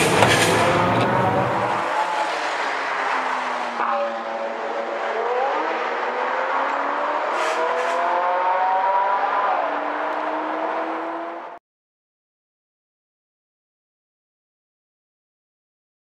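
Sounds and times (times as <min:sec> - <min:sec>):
sports car engine accelerating: 0:00.0 - 0:11.6.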